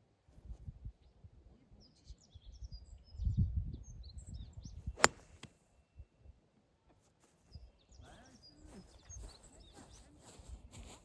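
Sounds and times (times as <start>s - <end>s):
golf club striking ball: 5.0s - 5.5s
birds chirping: 7.5s - 10.5s.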